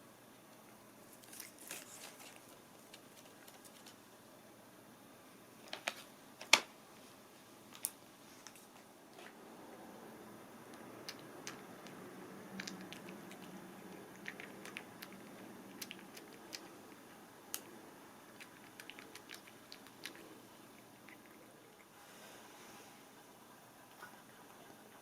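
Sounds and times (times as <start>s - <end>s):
cat crunching dry treats: 1.1s - 4.0s, 11.0s - 21.5s.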